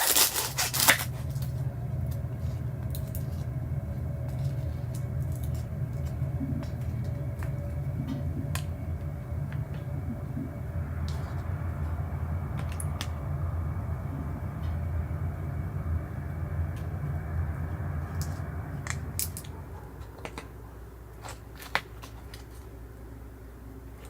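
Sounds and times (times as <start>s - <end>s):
fire crackling and popping: 0.0s - 13.4s, 18.0s - 19.6s
low rumble: 0.7s - 21.0s.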